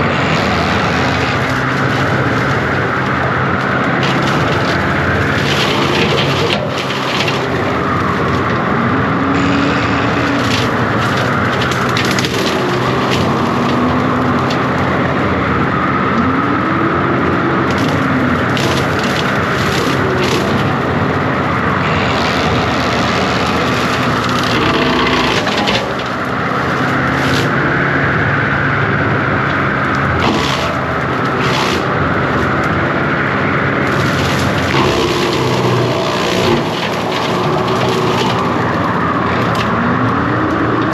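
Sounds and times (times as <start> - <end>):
track loader engine running: 0.0 - 40.9
limbs and brush cracking: 17.7 - 27.6, 29.9 - 40.9.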